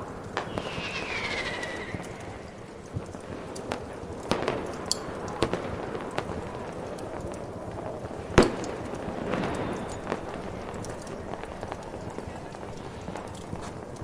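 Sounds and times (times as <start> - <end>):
background hiss: 0.0 - 6.0
fireworks cracking and banging: 0.0 - 14.0.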